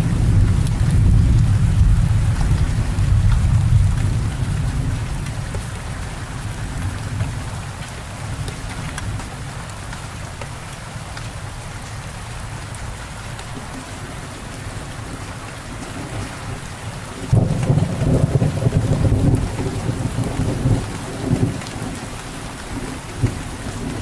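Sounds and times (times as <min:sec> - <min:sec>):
thunder rumbling: 0:00.0 - 0:07.6, 0:17.2 - 0:22.2
steady rain falling: 0:00.0 - 0:24.0.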